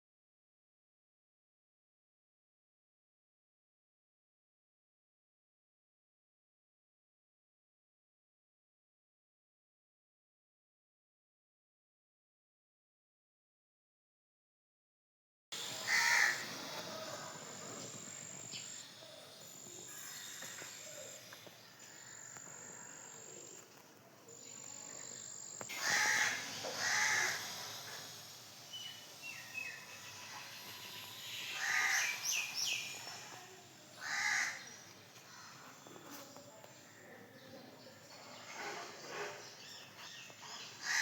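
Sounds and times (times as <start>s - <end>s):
small birds chirping: 15.6s - 41.0s
crow cawing: 15.8s - 17.5s, 25.7s - 27.6s, 31.4s - 32.3s, 34.0s - 35.7s.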